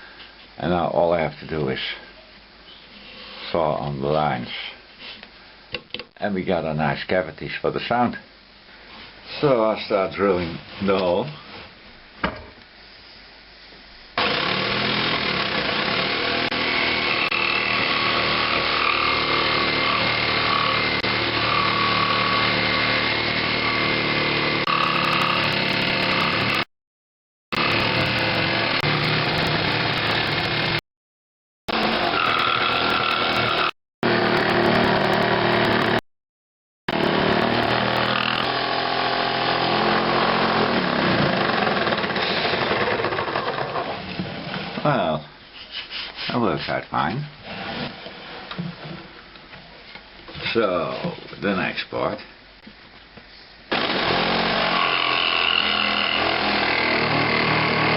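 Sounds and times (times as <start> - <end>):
power tool cutting wood: 14.2 - 26.7, 27.5 - 30.8, 31.7 - 36.0, 36.9 - 43.9, 53.7 - 57.9.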